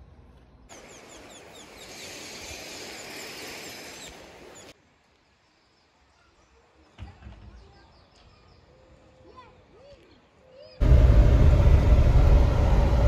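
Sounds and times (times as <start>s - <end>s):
steady hiss: 0.7s - 5.7s.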